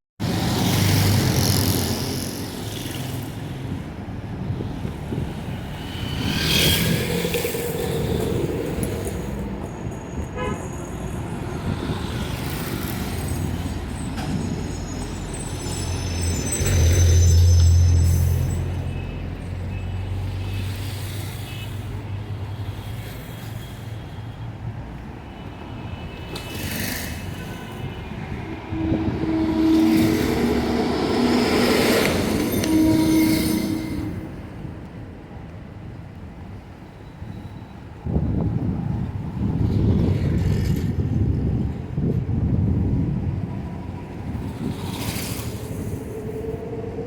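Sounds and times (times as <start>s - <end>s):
cars and trucks passing: 0.2s - 47.0s
car horn tooting: 10.2s - 10.9s, 27.3s - 34.4s
heavy vehicle low rumble: 27.9s - 35.1s.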